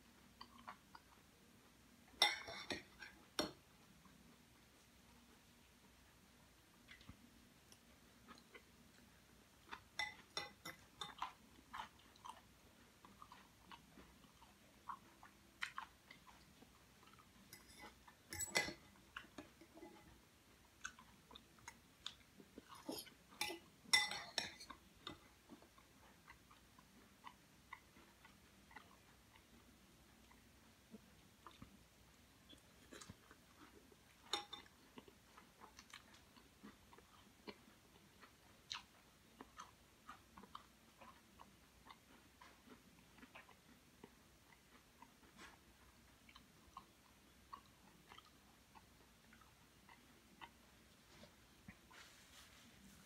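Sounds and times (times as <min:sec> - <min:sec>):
person chewing crunchy salad: 0:06.9 - 0:52.8.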